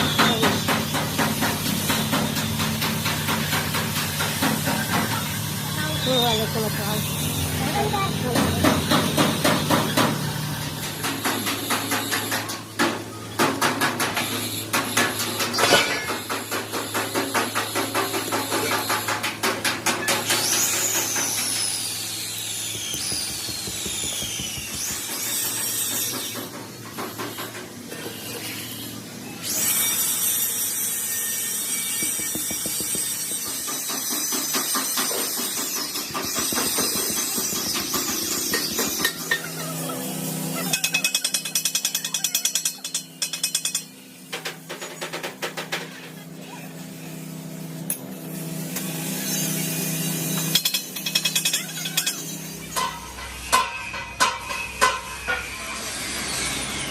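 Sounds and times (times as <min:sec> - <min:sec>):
power tool rapid strikes: 0:14.2 - 0:26.6, 0:29.6 - 0:39.5.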